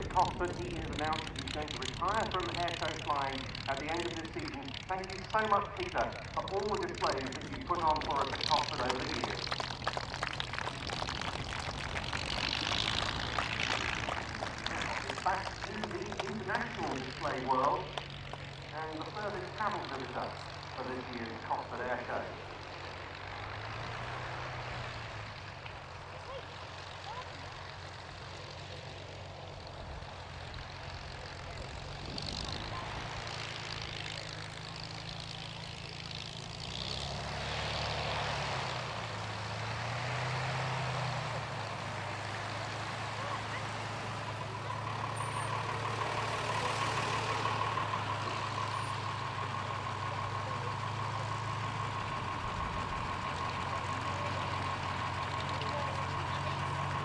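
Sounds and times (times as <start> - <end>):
steady high whine: 0.0 - 23.2
aircraft engine passing: 0.0 - 57.0.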